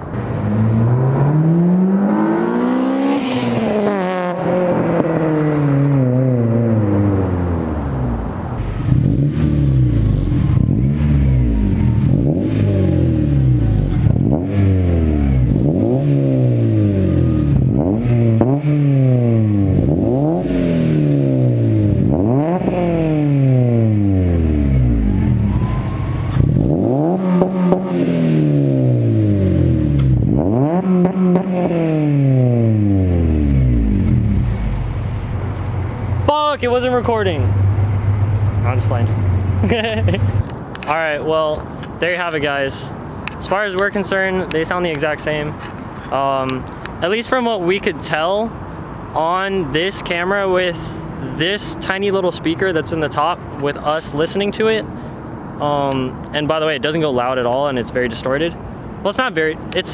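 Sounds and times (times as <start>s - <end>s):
car engine revving: 0.0s - 40.6s.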